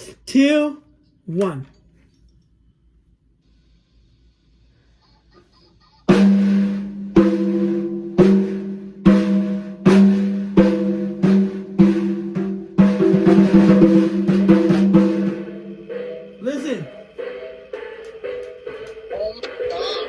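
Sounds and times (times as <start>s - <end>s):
toy demo tune with drum hits: 6.0s - 20.0s.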